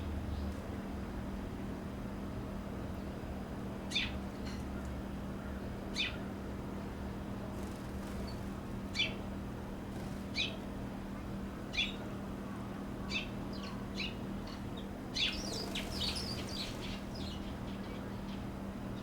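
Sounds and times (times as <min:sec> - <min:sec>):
songbirds chirping: 0:03.9 - 0:09.4, 0:10.0 - 0:19.0.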